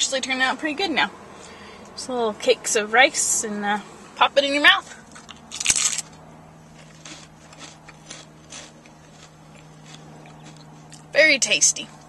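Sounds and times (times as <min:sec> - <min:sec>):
steady low hum: 0:00.0 - 0:12.0
crunching while chewing: 0:04.8 - 0:11.2
crunchy bite into snack: 0:05.1 - 0:06.2, 0:06.8 - 0:11.1.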